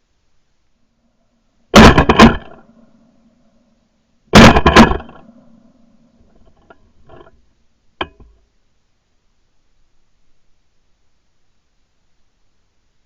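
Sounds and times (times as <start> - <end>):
shotgun shots: 1.8 - 2.6, 4.4 - 5.2.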